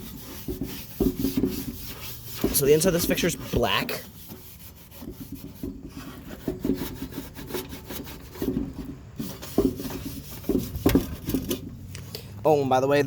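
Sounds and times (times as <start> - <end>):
rubbing and scraping on metal fixture: 0.0 - 11.9.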